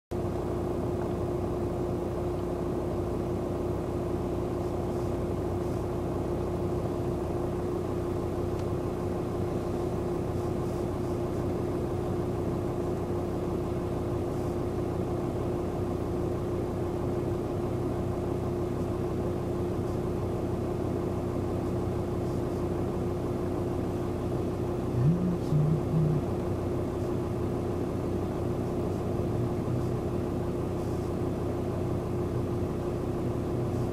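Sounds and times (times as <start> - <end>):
motor droning steadily: 0.2 - 33.9.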